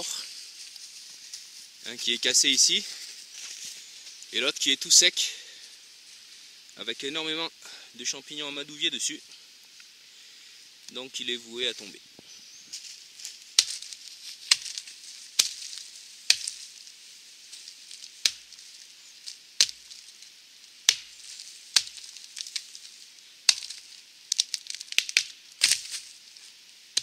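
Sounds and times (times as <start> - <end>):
hatchet chopping wood: 15.4 - 15.7, 16.3 - 16.6, 18.2 - 18.5, 19.6 - 19.9, 20.9 - 21.2, 21.8 - 22.1, 23.5 - 23.8.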